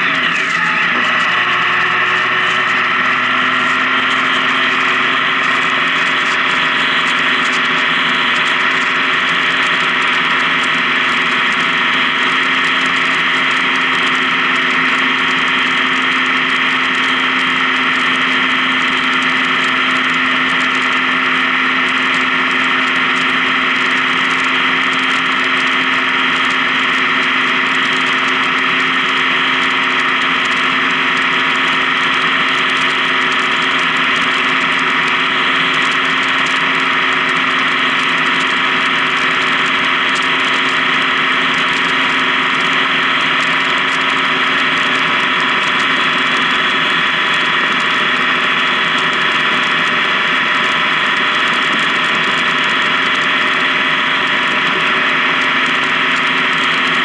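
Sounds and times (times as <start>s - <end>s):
motorcycle engine cruising: 0.0s - 57.0s
road and wind noise: 0.0s - 57.0s.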